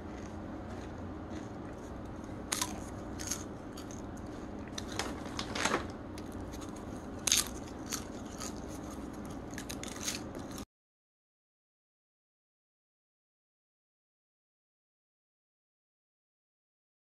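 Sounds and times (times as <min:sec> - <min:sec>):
person eating crunchy food: 0:00.0 - 0:10.6
steady low hum: 0:00.0 - 0:10.7.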